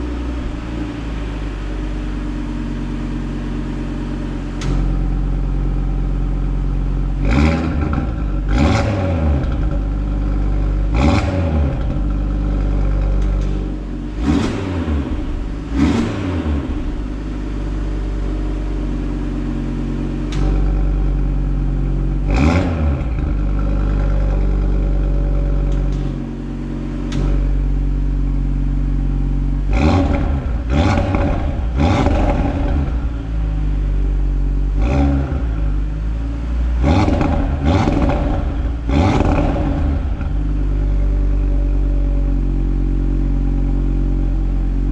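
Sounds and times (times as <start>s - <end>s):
car engine idling with throttle blips: 0.0s - 44.9s.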